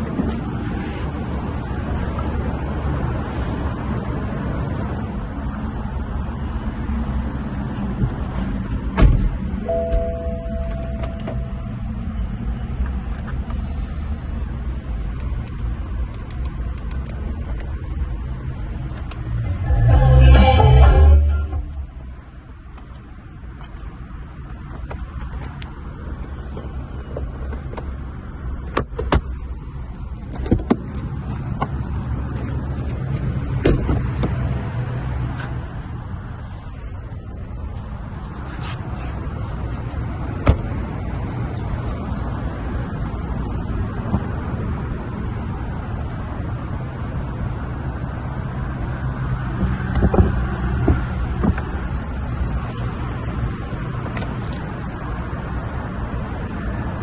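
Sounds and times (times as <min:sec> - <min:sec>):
car engine low rumble: 0:00.0 - 0:57.0
heavy thump: 0:09.0 - 0:10.1
steady low rumble: 0:15.6 - 0:22.7.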